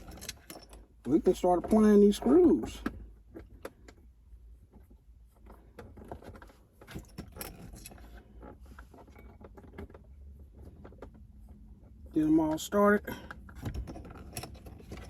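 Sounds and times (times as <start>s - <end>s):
small screws clicking and rattling: 0.0s - 1.0s, 5.5s - 11.2s, 13.1s - 15.0s.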